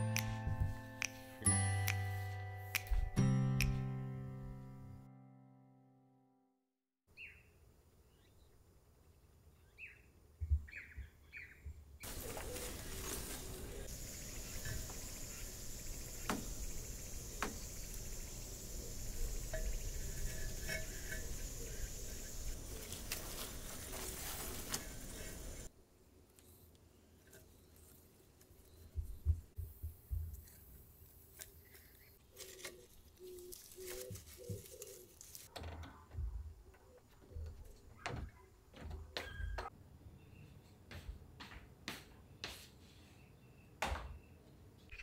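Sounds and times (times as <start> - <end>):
branches rustling and clicking: 12.0 - 25.7, 30.3 - 36.0
steady hiss: 12.0 - 25.7.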